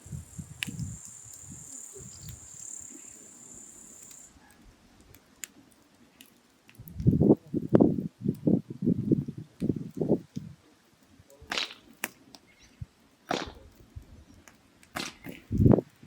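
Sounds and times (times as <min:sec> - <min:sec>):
high insect chirring: 0:00.0 - 0:04.3
wood fire crackling: 0:00.0 - 0:16.0.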